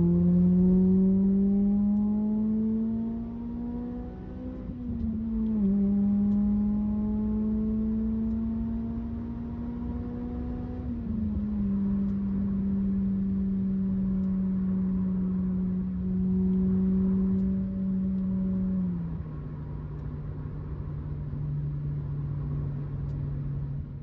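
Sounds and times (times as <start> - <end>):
car engine droning while driving: 0.0 - 24.0.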